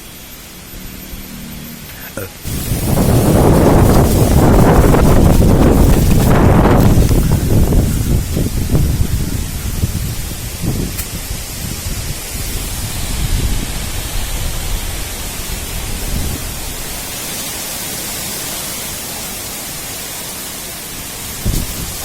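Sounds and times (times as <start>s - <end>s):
wind buffeting microphone: 2.4s - 17.4s, 21.0s - 22.0s
strong wind gusts: 2.4s - 22.0s.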